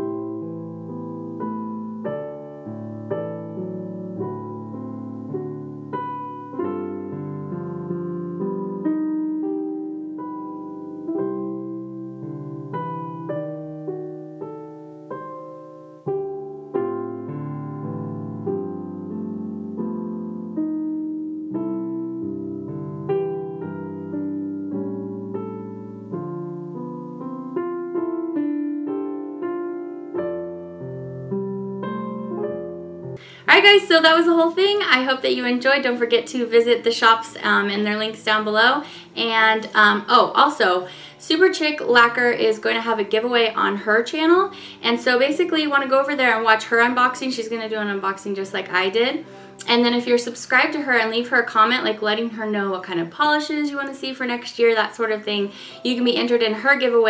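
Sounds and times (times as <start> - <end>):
solo piano playing: 0.0 - 57.0.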